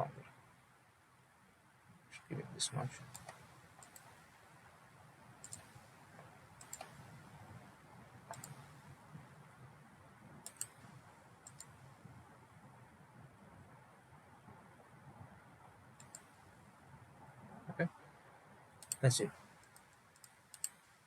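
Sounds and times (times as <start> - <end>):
computer mouse clicks: 3.0 - 4.3, 5.4 - 7.4, 8.3 - 8.8, 10.4 - 11.8, 16.0 - 16.4, 18.8 - 20.9.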